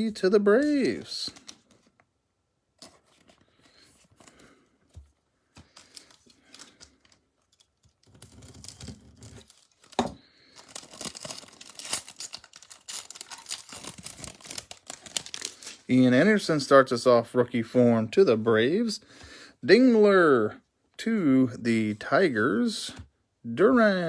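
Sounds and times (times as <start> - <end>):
foil wrapper crinkling: 0.6 - 2.0, 5.6 - 16.0
foil wrapper ripping: 7.6 - 15.9.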